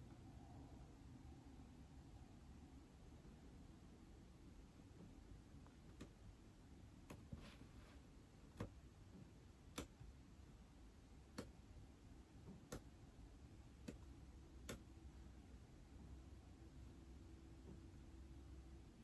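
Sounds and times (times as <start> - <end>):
taps on a tablet screen: 8.5 - 10.2, 11.3 - 11.6, 13.8 - 14.9.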